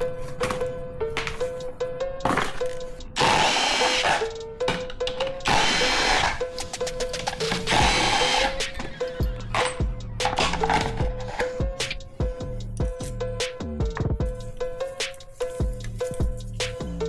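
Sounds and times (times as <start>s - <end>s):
background music: 0.0s - 17.0s
power drill whining: 2.3s - 11.5s.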